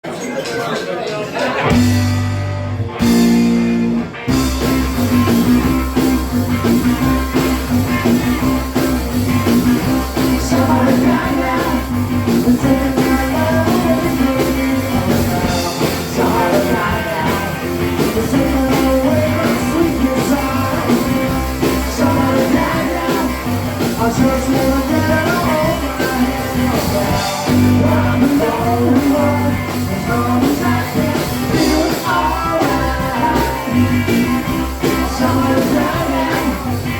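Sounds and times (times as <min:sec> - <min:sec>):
rock and roll band playing: 0:00.0 - 0:36.9
person singing: 0:09.8 - 0:36.9.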